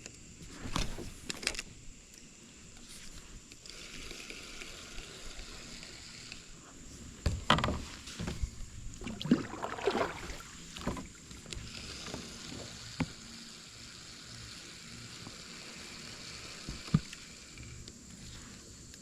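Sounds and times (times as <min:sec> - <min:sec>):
water splashing and sloshing: 0:07.7 - 0:13.2
flowing water rushing: 0:08.9 - 0:11.3.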